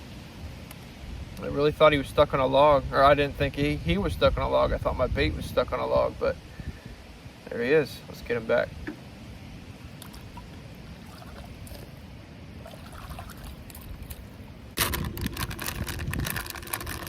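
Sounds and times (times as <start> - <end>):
wind on microphone: 0.0 - 7.6, 8.2 - 17.0
water trickling and splashing: 8.1 - 17.0
rapid clicks and rattles: 14.8 - 17.0.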